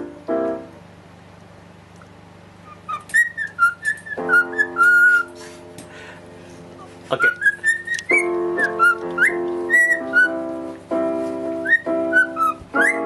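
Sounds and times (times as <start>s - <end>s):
electronic keyboard chords: 0.0s - 0.9s, 7.8s - 13.0s
cockatiel whistling a tune: 2.6s - 5.3s, 7.2s - 10.5s, 11.6s - 13.0s.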